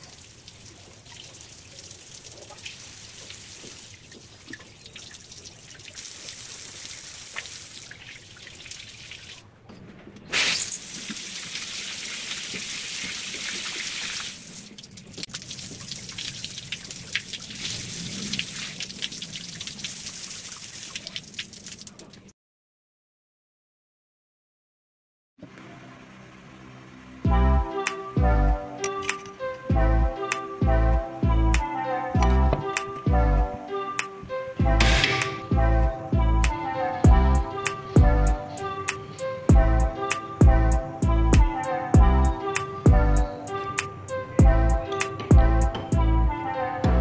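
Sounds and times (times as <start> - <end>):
shower water spraying: 0.0 - 9.4, 10.3 - 22.1.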